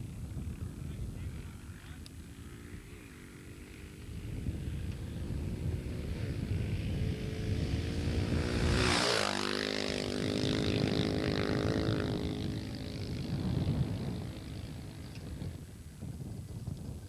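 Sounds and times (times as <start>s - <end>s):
dirt bike engine passing by: 0.0s - 16.0s.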